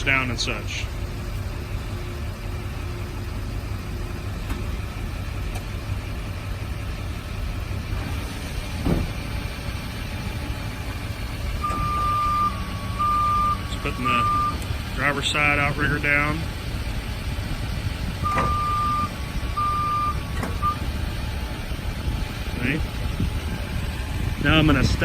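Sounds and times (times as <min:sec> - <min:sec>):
diesel truck engine idling: 0:00.0 - 0:25.0
electronic warning tone: 0:11.6 - 0:14.6, 0:18.2 - 0:20.9.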